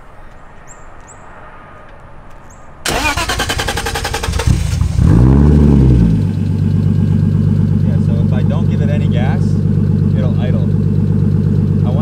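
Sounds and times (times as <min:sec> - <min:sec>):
starter motor cranking: 0:02.9 - 0:05.0
car engine revving and idling roughly: 0:02.9 - 0:12.0.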